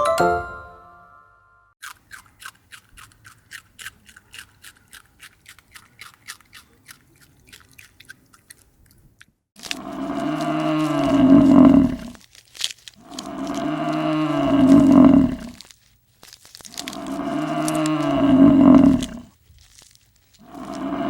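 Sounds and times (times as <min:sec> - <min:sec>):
animal chewing with crunching: 0:01.8 - 0:21.0
cow mooing: 0:09.8 - 0:12.1, 0:13.2 - 0:15.5, 0:17.0 - 0:19.2.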